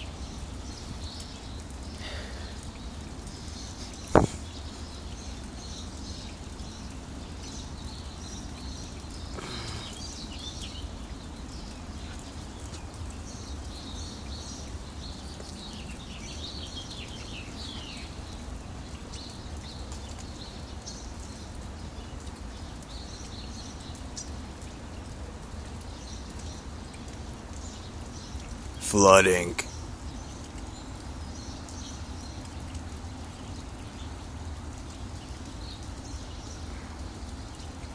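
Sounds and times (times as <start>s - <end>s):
steady rain falling: 0.0s - 37.9s
birds chirping: 8.7s - 10.8s.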